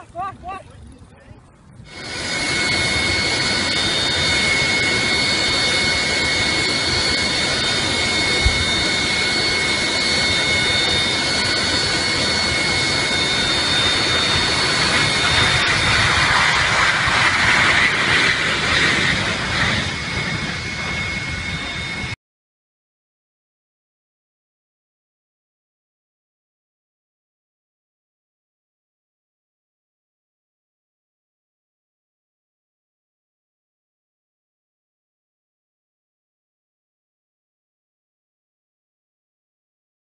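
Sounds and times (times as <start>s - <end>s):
jet engines rushing with whine: 0.0s - 22.2s.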